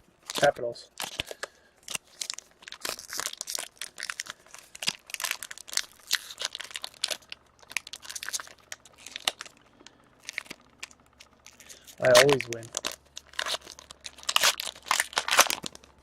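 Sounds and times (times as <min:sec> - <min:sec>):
wrapper tearing and crinkling: 0:00.2 - 0:16.0.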